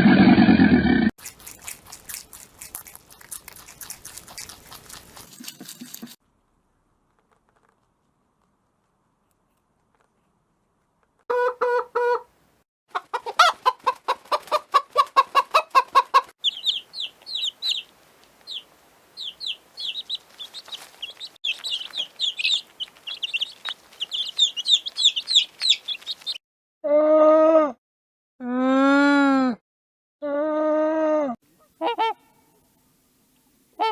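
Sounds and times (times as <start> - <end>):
hen clucking: 11.3 - 12.3, 12.9 - 26.4, 31.8 - 32.3
high chirps: 16.4 - 26.4.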